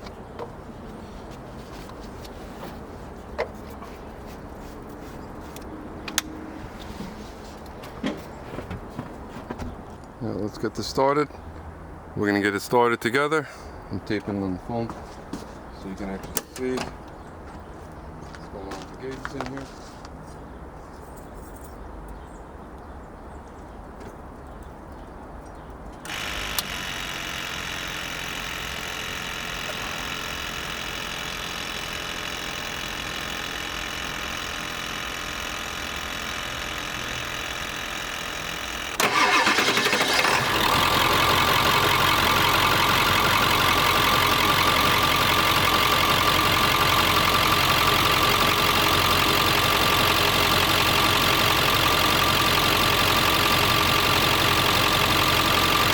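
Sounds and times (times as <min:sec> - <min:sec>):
diesel engine cranking and idling: 0:26.0 - 0:55.9.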